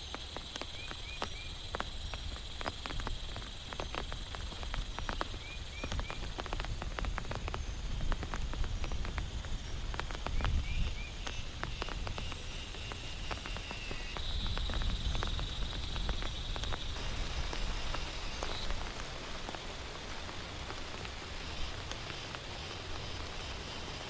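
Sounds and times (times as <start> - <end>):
heavy rain: 0.0 - 24.0
raindrops ticking on a surface: 0.0 - 24.0.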